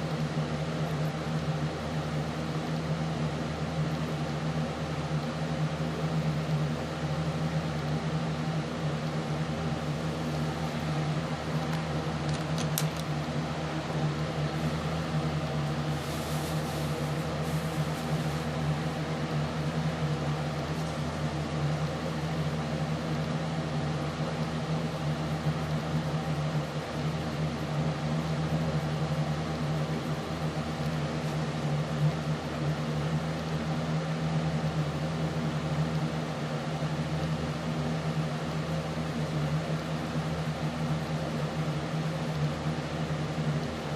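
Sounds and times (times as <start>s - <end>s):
low mechanical hum: 0.0s - 43.9s
soft rustle: 15.9s - 18.6s.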